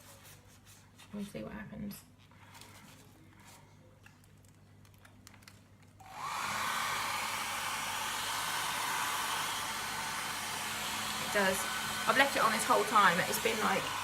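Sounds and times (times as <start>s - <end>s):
hair dryer whirring: 6.0s - 14.0s.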